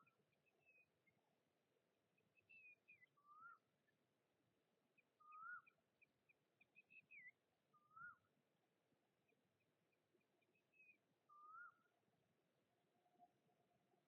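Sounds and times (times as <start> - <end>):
bird calling: 5.2 - 5.8, 11.3 - 11.9.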